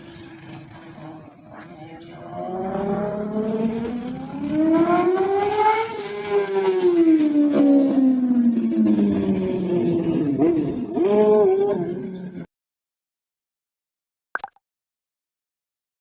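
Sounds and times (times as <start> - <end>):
motorcycle riding past: 0.0 - 10.8.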